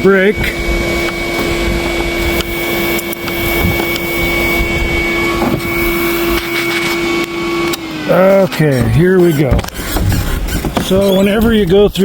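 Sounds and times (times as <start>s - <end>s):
quad engine idling: 7.2s - 12.0s.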